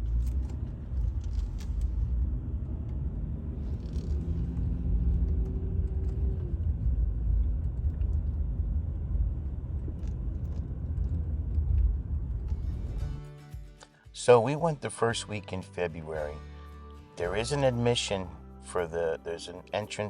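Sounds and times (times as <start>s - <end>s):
car engine and tyres rumbling: 0.0s - 13.8s.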